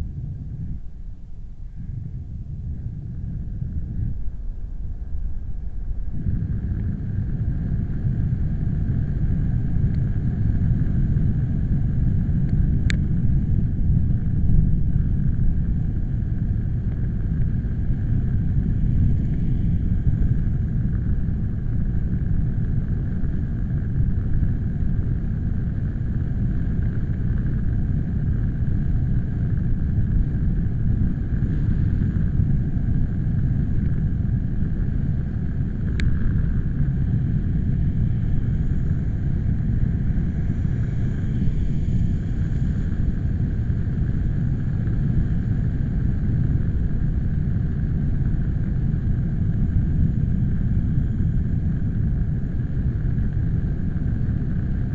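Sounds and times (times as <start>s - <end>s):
wind buffeting microphone: 0.0s - 54.9s
faint sharp ticks: 12.4s - 13.1s, 35.8s - 36.5s.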